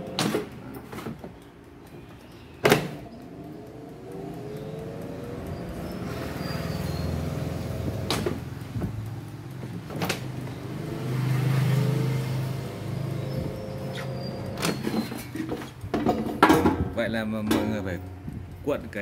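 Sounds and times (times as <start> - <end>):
basket drawer clicks: 0.0 - 1.3
air fryer motor hum: 2.6 - 14.9.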